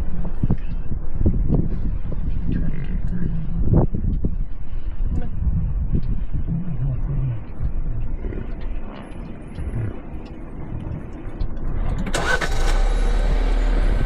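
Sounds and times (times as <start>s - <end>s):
vehicle engine running: 8.2s - 14.0s.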